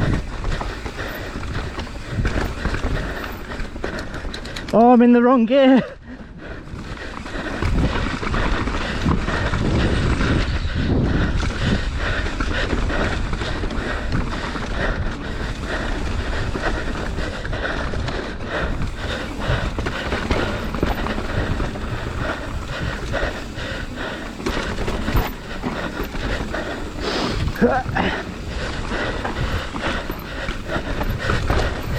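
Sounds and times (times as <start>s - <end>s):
wind buffeting microphone: 0.0s - 4.7s, 6.0s - 31.9s
bike clattering over bumps: 0.0s - 5.0s, 6.6s - 31.9s
tyres rumbling over ground: 18.4s - 31.9s.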